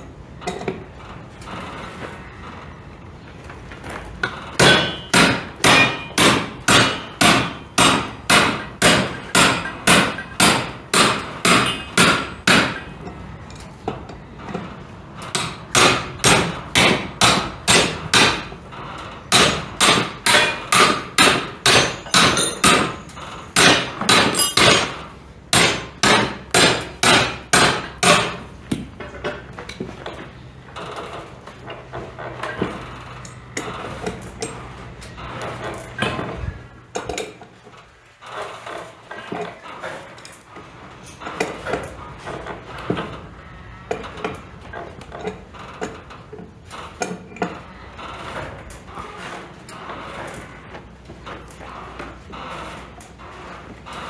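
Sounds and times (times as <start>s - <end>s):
hammer blows ringing: 4.6s - 13.0s, 19.3s - 25.0s.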